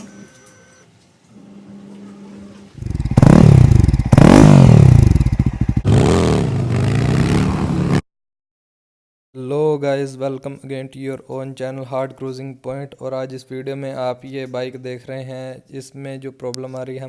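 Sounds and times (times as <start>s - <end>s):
motorcycle engine revving: 2.8s - 8.0s.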